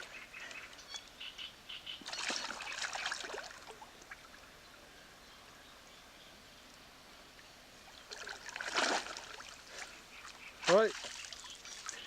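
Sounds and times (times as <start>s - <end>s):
bird chirps: 0.1s - 3.2s
water splashing and trickling: 2.0s - 4.6s, 7.3s - 12.0s.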